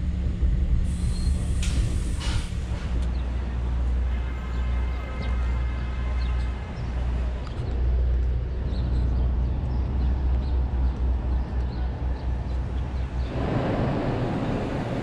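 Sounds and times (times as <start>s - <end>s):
traffic rumble: 0.0s - 15.0s
wind on microphone: 12.8s - 15.0s.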